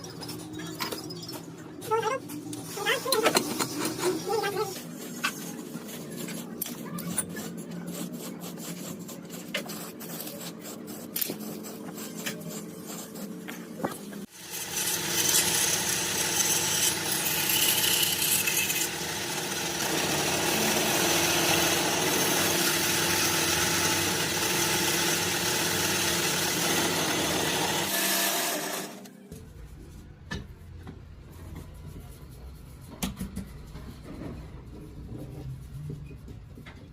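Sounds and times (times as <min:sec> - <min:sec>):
rubbing and scraping: 0:01.9 - 0:14.3
loud steady machine noise: 0:14.3 - 0:29.1.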